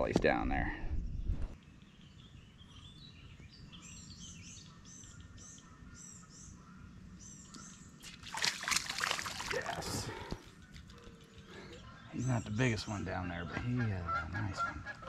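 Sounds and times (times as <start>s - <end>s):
wind rumble on microphone: 0.0s - 1.6s
songbird chirping: 0.0s - 15.0s
fish splashing at water surface: 8.0s - 10.4s.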